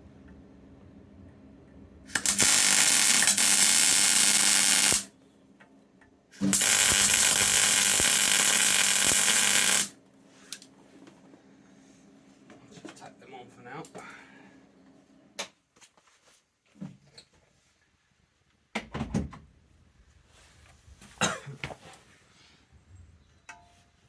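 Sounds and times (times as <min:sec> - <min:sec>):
welder arc crackling: 0:02.1 - 0:05.1, 0:06.4 - 0:10.6.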